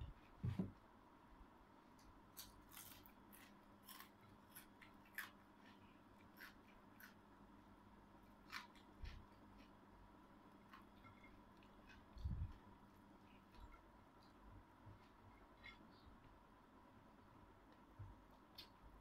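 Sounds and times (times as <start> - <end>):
person chewing crunchy food: 2.3 - 7.3, 8.2 - 9.8, 10.5 - 14.4.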